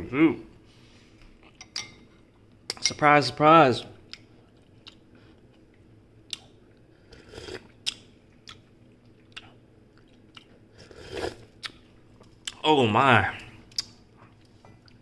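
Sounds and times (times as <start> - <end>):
person chewing noodles: 4.1 - 12.6, 13.6 - 15.0.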